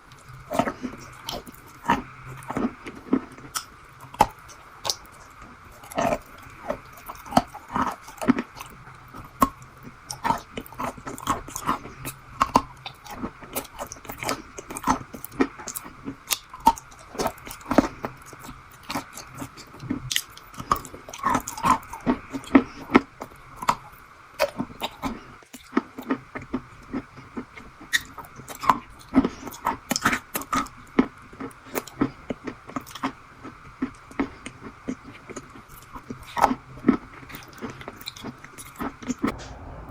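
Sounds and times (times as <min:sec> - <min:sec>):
chewing crunchy treat: 0:00.0 - 0:39.8
faint steady hum: 0:00.0 - 0:39.9.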